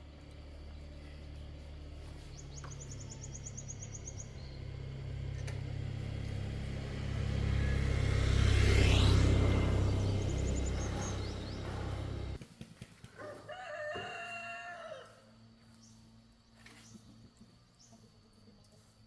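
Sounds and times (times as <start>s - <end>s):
passing vehicle engine rumbling: 0.0s - 12.4s.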